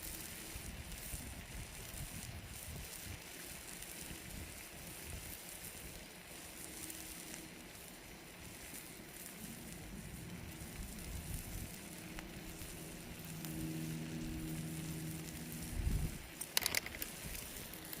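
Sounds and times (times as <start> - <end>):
campfire crackling: 0.0 - 18.0
low steady hum: 5.8 - 18.0.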